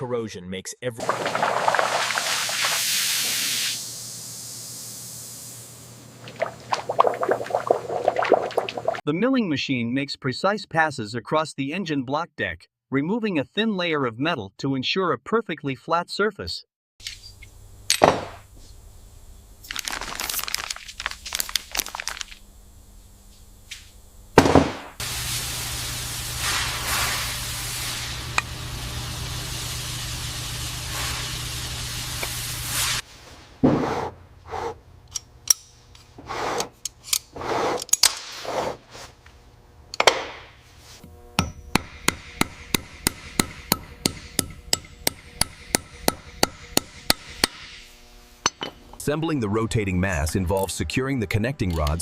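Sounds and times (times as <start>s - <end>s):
power tool running: 24.4s - 33.0s, 41.0s - 49.0s.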